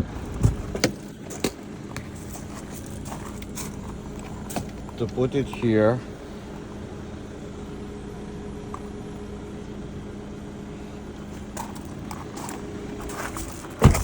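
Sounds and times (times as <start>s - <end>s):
low hum inside car: 0.0s - 14.0s.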